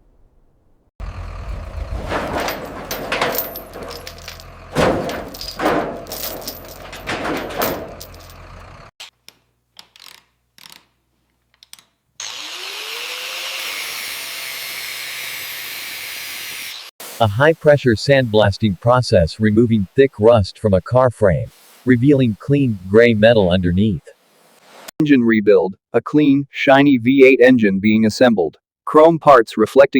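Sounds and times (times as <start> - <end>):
power tool running in surges: 12.2 - 16.8
steady hiss: 17.0 - 19.7, 21.5 - 24.9.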